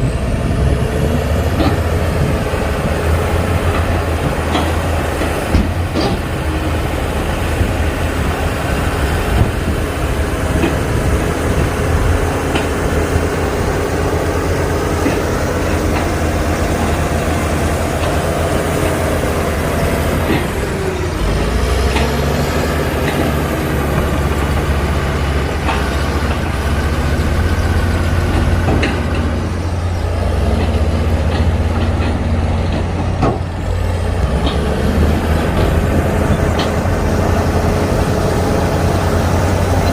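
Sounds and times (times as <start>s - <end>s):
diesel construction machinery: 0.0s - 39.9s.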